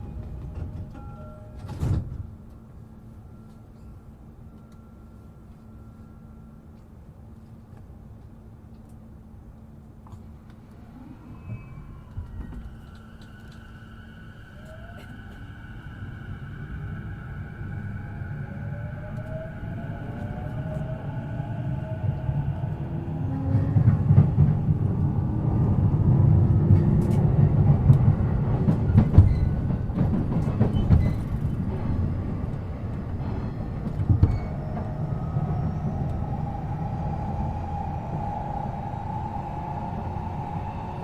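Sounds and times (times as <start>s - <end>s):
train wheels rumbling on rail: 0.0s - 4.8s, 6.7s - 41.0s
clicks of train wheels: 26.7s - 35.0s.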